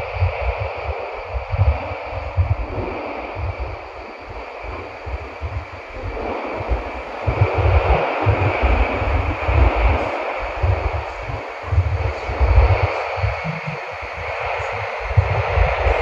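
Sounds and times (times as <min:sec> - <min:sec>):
train interior rolling rumble: 0:00.0 - 0:16.0.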